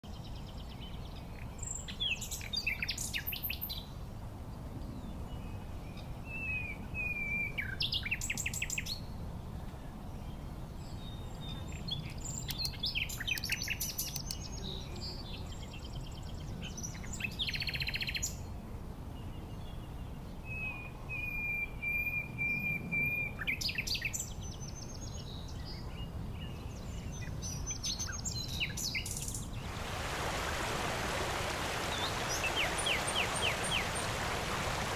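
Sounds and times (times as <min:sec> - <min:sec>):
songbirds singing and chirping: 0:00.0 - 0:34.9.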